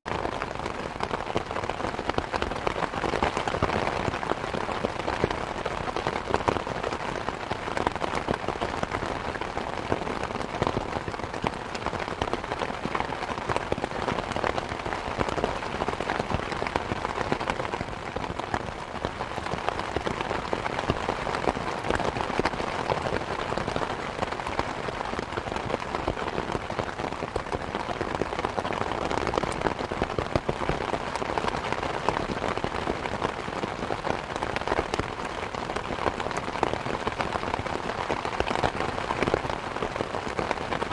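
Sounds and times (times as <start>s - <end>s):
steady rain: 0.1s - 40.9s.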